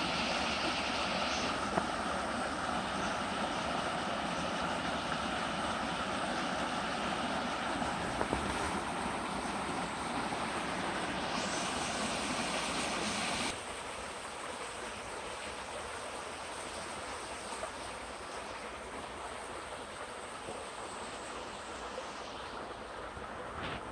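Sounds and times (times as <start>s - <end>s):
stream flowing: 0.0s - 23.9s.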